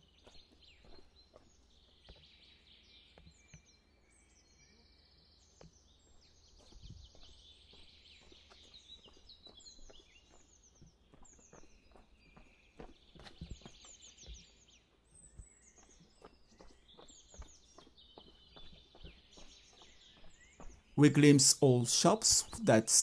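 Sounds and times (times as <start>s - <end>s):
soft footsteps: 0.0s - 2.5s, 5.6s - 21.0s
small birds singing: 0.0s - 23.0s.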